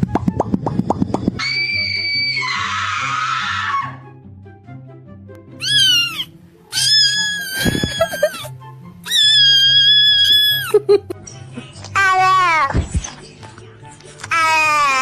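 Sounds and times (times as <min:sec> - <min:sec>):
looping background music: 0:00.0 - 0:14.9
cat meowing and yowling: 0:05.6 - 0:10.7.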